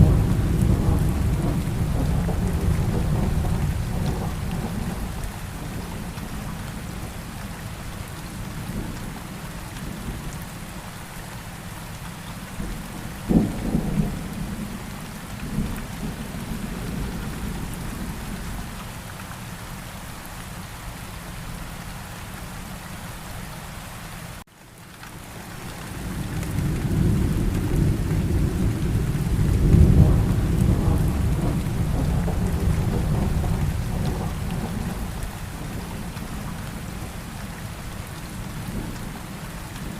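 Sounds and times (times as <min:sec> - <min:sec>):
rumble of thunder: 0:00.0 - 0:10.4, 0:12.5 - 0:18.8, 0:25.7 - 0:39.9
steady rain: 0:00.0 - 0:39.9.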